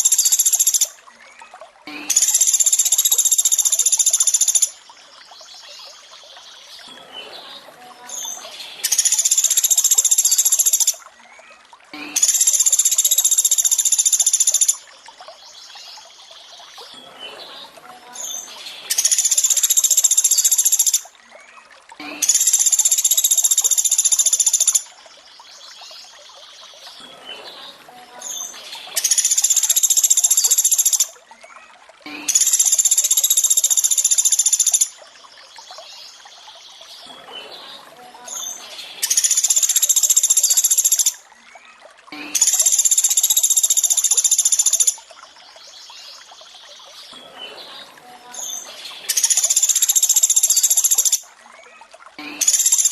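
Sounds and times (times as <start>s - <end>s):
faint running water: 0.0s - 52.9s.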